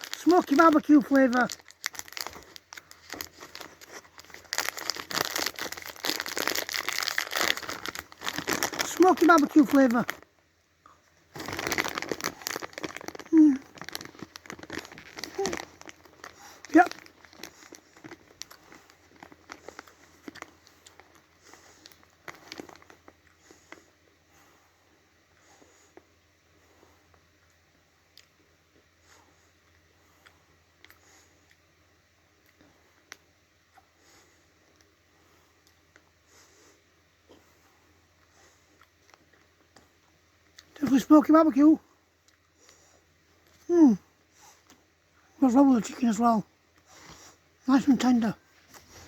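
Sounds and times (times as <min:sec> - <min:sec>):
plastic packet crinkling: 0:00.0 - 0:10.3, 0:11.3 - 0:23.2.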